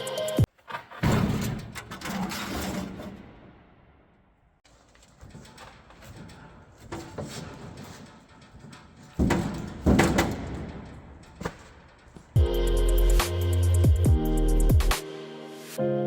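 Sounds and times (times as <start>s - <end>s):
background music: 0.0s - 0.5s, 9.3s - 16.0s
knocks and clatter: 0.5s - 3.9s, 4.6s - 12.4s.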